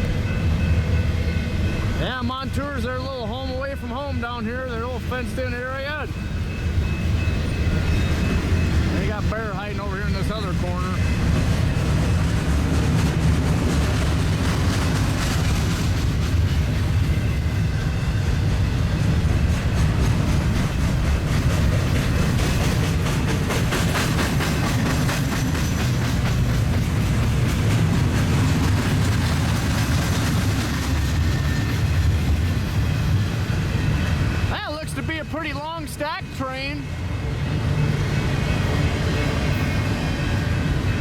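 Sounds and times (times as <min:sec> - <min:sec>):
freight train wheels rumbling: 0:00.0 - 0:41.0
wheels clicking over rail joints: 0:08.1 - 0:17.1, 0:18.5 - 0:33.2.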